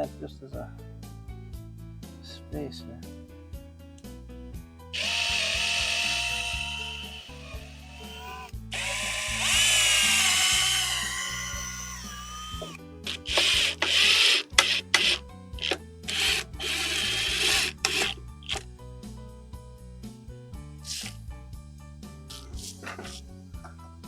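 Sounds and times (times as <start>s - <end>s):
background music: 0.0s - 24.0s
power drill whining: 5.0s - 18.7s, 20.9s - 21.2s.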